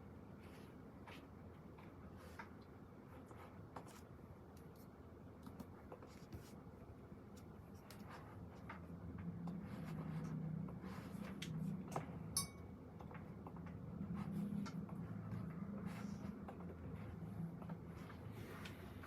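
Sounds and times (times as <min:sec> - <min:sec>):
low room hum: 0:00.0 - 0:19.0
pen scratching on paper: 0:09.5 - 0:11.2
short clink: 0:12.4 - 0:12.6.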